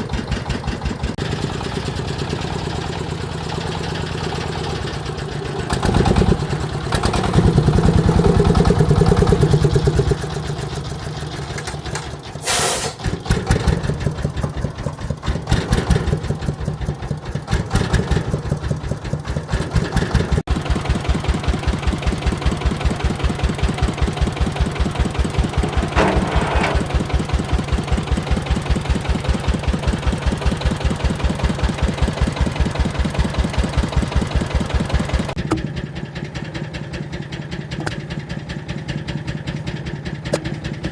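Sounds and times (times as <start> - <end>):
farm machine engine running: 0.0 - 40.9
short hissing burst: 12.4 - 13.0.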